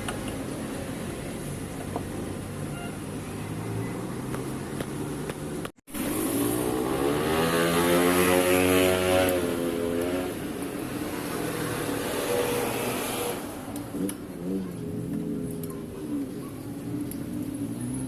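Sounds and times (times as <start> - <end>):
small two-stroke engine revving: 5.9 - 16.3.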